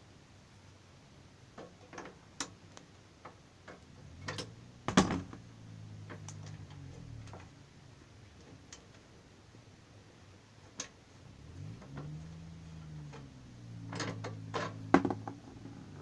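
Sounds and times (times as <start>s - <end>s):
wrench and metal parts clinking: 13.9s - 14.9s.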